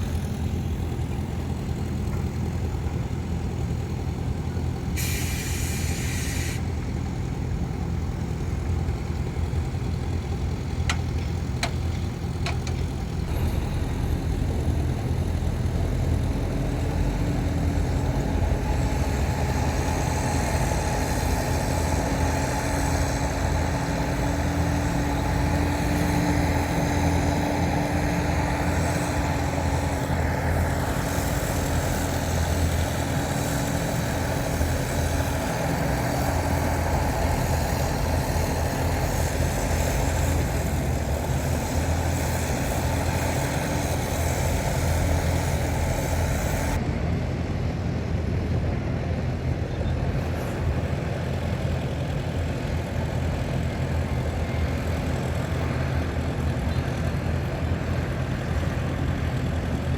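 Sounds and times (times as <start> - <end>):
diesel machinery engine drone: 0.0 - 59.9
upper hiss: 5.0 - 6.7.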